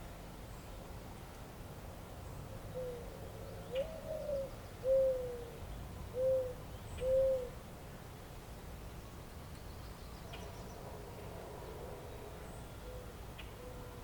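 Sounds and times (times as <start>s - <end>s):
low outdoor background hum: 0.0s - 14.0s
pigeon cooing: 3.7s - 5.5s, 6.2s - 7.6s.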